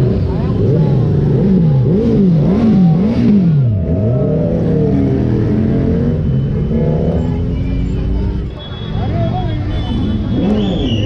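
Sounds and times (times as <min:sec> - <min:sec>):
sports car engine revving: 0:00.0 - 0:07.9.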